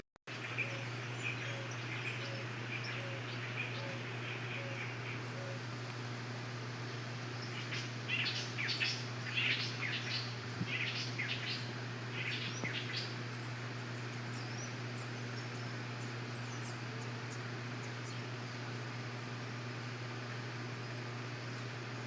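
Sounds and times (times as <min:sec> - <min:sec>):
steady low hum: 0:00.3 - 0:22.0
canaries chirping: 0:07.4 - 0:13.2.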